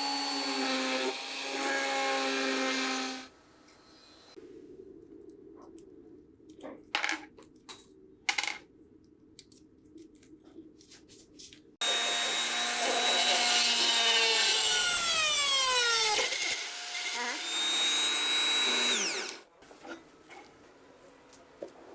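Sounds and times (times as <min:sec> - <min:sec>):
electric power tool whining: 0:11.8 - 0:19.4.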